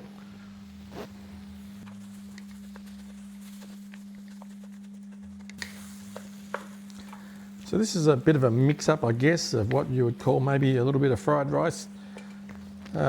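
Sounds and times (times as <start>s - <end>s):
steady low hum: 0.0s - 13.0s
pan simmering: 1.4s - 9.9s.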